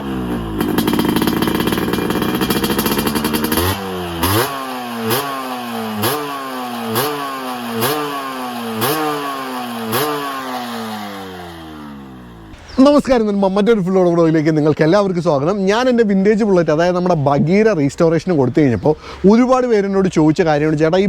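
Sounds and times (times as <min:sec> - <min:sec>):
two-stroke motorcycle engine revving: 0:00.0 - 0:12.8.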